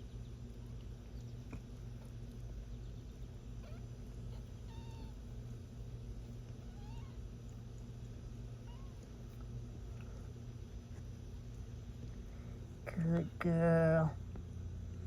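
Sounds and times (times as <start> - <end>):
kittens mewing: 3.5 - 7.9, 8.5 - 9.4.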